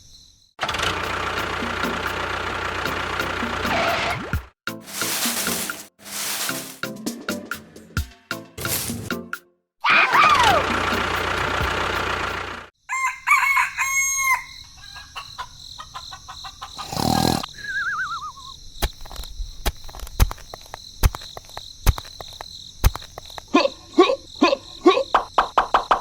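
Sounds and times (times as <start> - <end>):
rooster crowing: 12.8 - 15.2.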